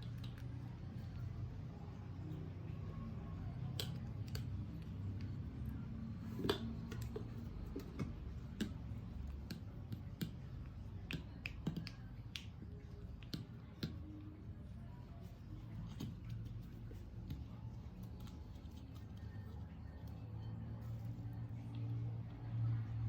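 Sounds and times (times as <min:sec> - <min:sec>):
low steady hum: 0:00.0 - 0:23.0
clicks and taps of objects handled: 0:03.6 - 0:05.4, 0:06.1 - 0:14.4.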